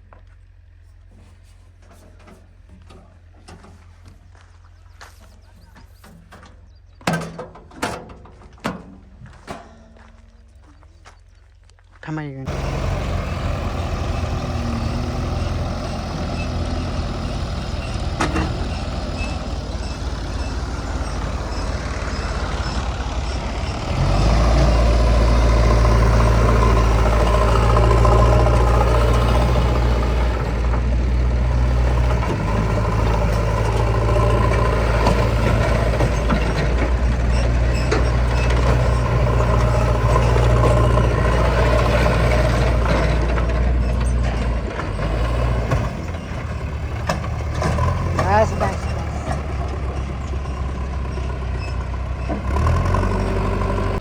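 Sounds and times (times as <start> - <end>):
diesel engine revving: 12.4 - 54.0.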